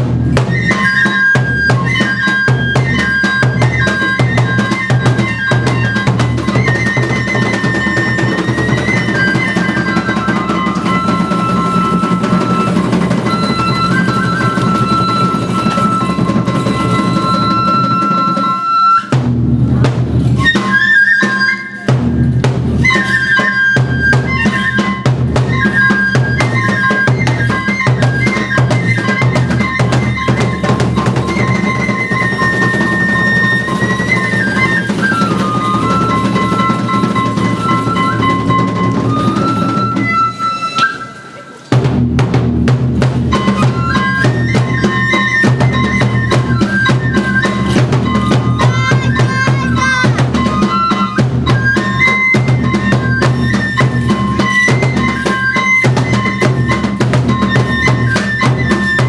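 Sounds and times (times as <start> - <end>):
bamboo flute melody: 0.0 - 59.0
taiko drumming: 0.0 - 59.0.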